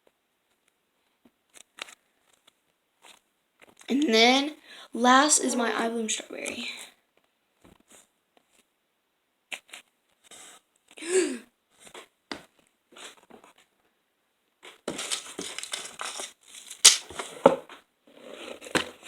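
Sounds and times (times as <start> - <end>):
plastic packaging crinkling and tearing: 14.9 - 17.3.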